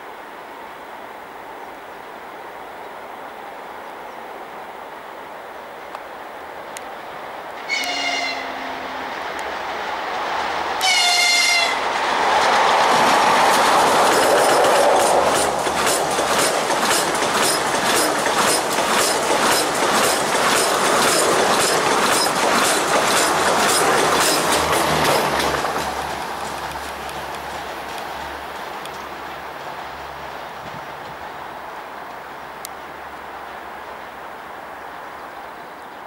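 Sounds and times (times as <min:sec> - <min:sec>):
train passing at speed: 0:02.4 - 0:36.0
locomotive horn blasts: 0:07.6 - 0:09.2, 0:10.8 - 0:11.8
wheels clicking over rail joints: 0:09.3 - 0:31.3.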